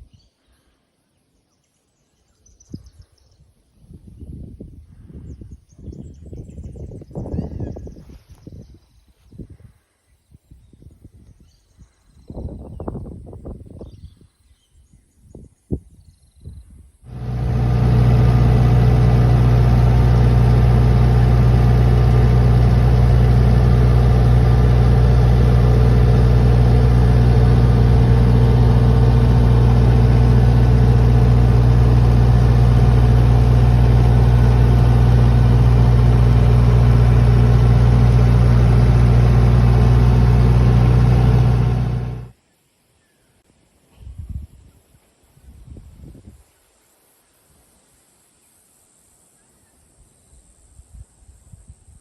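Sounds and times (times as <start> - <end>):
excavator engine running: 17.1 - 42.3.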